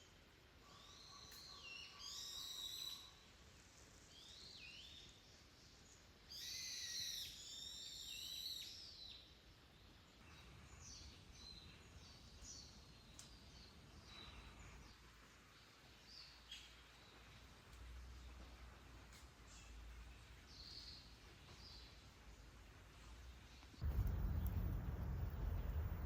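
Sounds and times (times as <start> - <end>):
faint bird chirps: 6.3 - 9.3.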